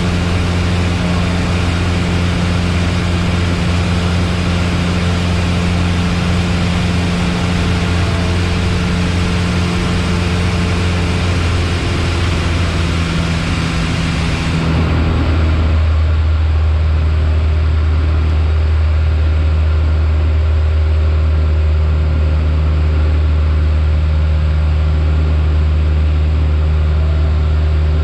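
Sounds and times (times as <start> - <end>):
rush of air noise: 0.0 - 17.6
light aircraft engine droning: 0.0 - 28.0.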